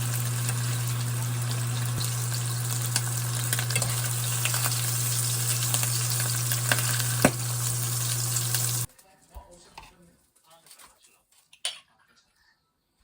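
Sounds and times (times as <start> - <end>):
food sizzling in a pan: 0.0 - 8.9
low hum: 0.0 - 8.9.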